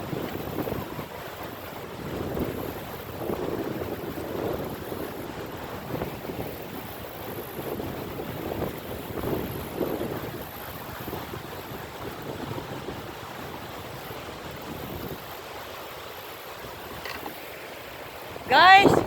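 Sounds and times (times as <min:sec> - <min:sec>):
wind buffeting microphone: 0:00.0 - 0:15.8, 0:18.2 - 0:19.0.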